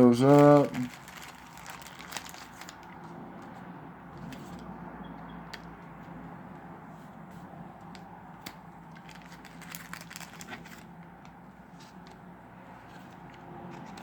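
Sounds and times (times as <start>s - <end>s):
plastic crinkling: 0.0s - 3.1s, 8.4s - 12.3s.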